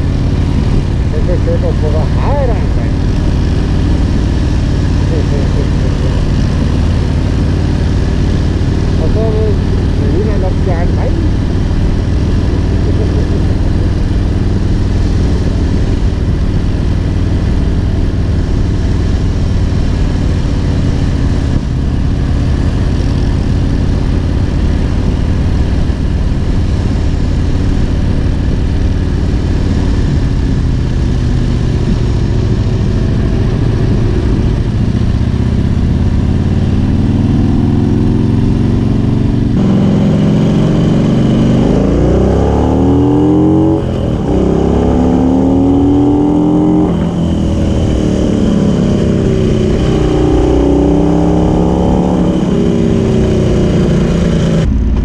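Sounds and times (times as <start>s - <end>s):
wind over microphone: 0.0s - 41.1s
motorcycle engine running: 0.0s - 55.0s.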